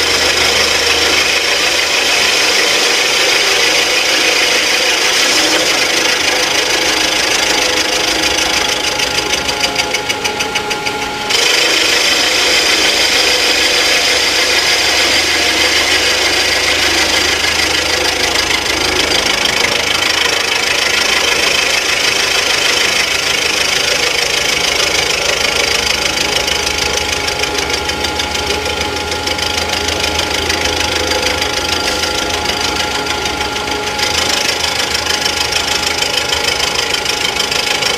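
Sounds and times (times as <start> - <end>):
machine cutting metal: 0.0 - 37.9
ringing high tone: 0.0 - 37.9.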